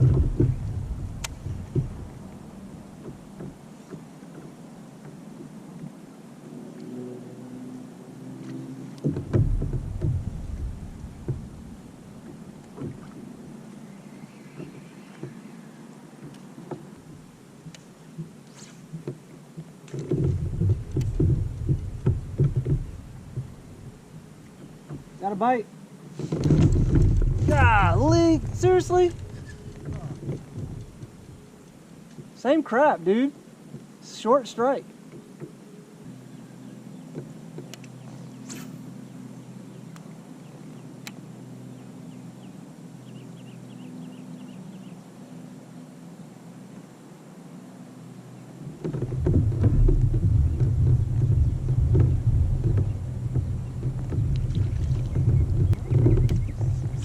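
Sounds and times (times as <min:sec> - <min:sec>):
thumps on kayak hull: 0:00.0 - 0:02.3, 0:03.0 - 0:04.5, 0:09.0 - 0:13.3, 0:20.0 - 0:23.7, 0:26.2 - 0:31.2, 0:48.6 - 0:57.0
low motor hum: 0:00.0 - 0:32.4, 0:34.9 - 0:57.0
bird chirping: 0:13.8 - 0:15.9, 0:41.6 - 0:45.1, 0:54.6 - 0:57.0
light clicks: 0:37.2 - 0:38.8, 0:41.0 - 0:41.2.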